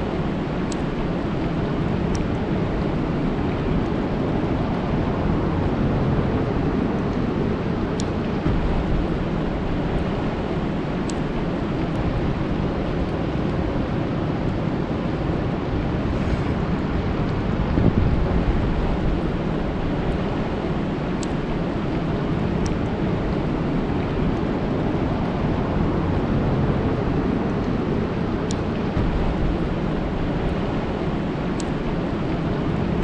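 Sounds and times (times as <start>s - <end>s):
sharp raindrop ticks: 0.0s - 5.8s, 6.5s - 14.6s, 17.2s - 25.6s, 28.4s - 33.0s
rain falling on a lake: 18.1s - 33.0s.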